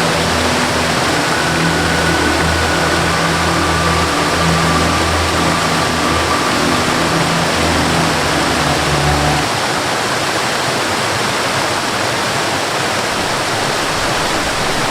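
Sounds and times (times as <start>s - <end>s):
low sustained melody tones: 0.0s - 10.2s
waterfall rushing: 0.0s - 14.9s.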